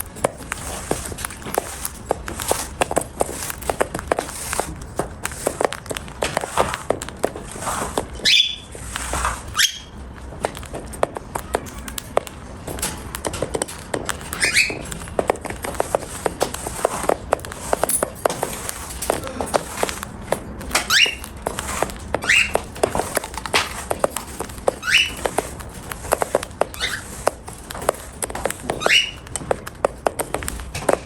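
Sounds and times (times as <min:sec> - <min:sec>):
beak clicking and crunching food: 0:00.0 - 0:31.0
cockatiel chirps: 0:08.2 - 0:08.7, 0:09.5 - 0:10.0, 0:14.4 - 0:14.9, 0:20.9 - 0:21.3, 0:22.2 - 0:22.6, 0:24.8 - 0:25.3, 0:26.7 - 0:27.1, 0:28.8 - 0:29.2.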